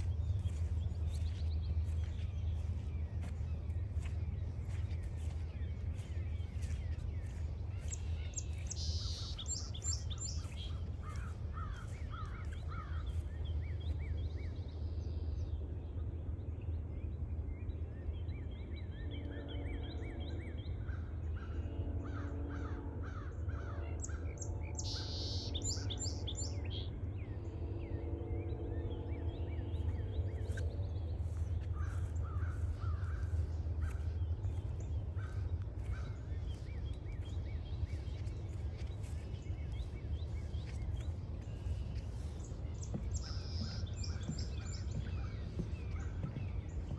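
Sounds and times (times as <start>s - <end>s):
birds calling and singing: 0.0s - 15.3s, 23.9s - 27.5s, 28.5s - 46.9s
low rumble: 0.0s - 16.2s, 26.8s - 46.9s.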